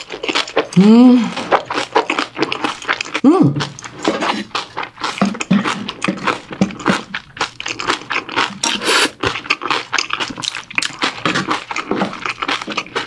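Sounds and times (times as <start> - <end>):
wet chewing with mouth clicks: 0.0 - 13.0
wooden spoon scraping a pot: 8.6 - 9.2.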